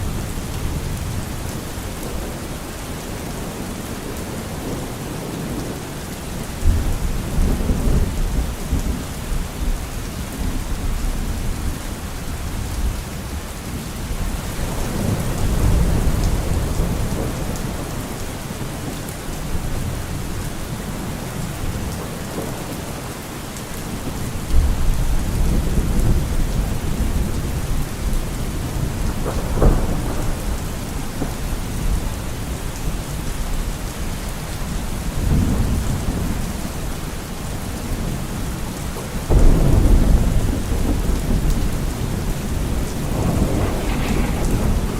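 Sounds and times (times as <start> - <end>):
heavy rain: 0.0 - 44.9
rolling thunder: 14.1 - 18.9, 24.0 - 33.5, 39.3 - 44.9
sharp thunder crack: 39.3 - 44.9.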